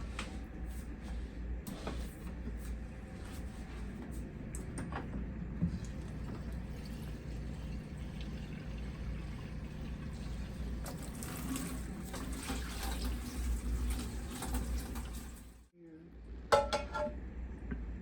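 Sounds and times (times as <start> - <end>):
water pouring into a pot: 5.7 - 15.7.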